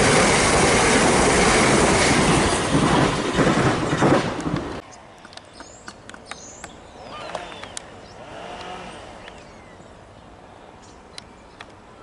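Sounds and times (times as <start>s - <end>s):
distant diesel train rumble: 0.0s - 4.8s
gulls calling: 6.3s - 10.0s.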